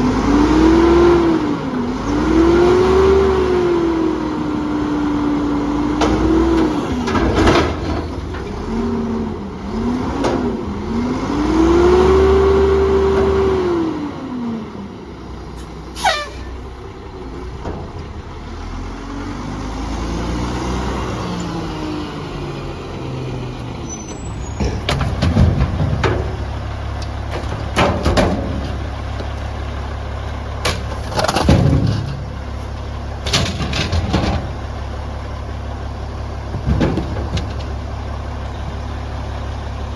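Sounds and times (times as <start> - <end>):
garbage truck diesel engine: 0.0 - 39.9
sharp knocks and clanks: 24.6 - 26.5, 27.3 - 28.9, 30.6 - 32.4, 36.5 - 37.8.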